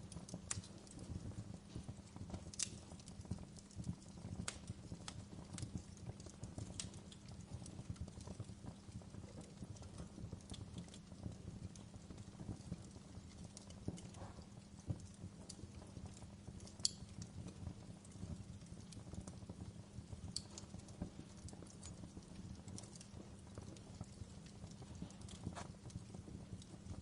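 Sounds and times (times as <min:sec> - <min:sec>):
low rumble of flames: 0:00.0 - 0:27.0
wood fire crackling: 0:00.0 - 0:27.0
sharp pops of fire: 0:00.3 - 0:05.9, 0:11.7 - 0:17.4, 0:18.9 - 0:27.0.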